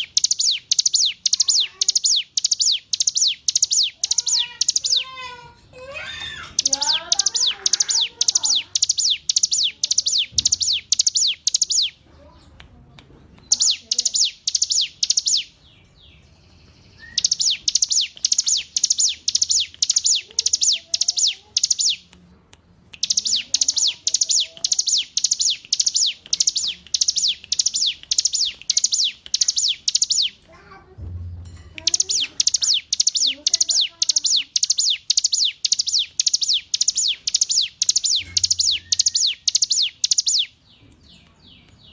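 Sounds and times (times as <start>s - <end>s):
faint lower bird chirps: 0.0s - 5.1s, 6.1s - 12.4s, 13.5s - 22.0s, 31.8s - 41.9s
bird singing rapid high notes: 0.0s - 5.4s, 6.0s - 12.4s, 13.4s - 22.1s, 22.9s - 30.8s, 31.5s - 41.9s.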